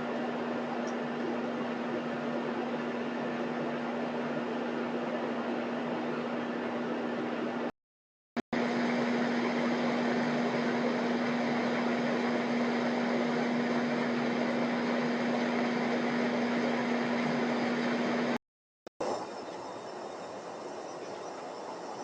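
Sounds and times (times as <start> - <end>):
machine hum with hiss: 8.6 - 18.4.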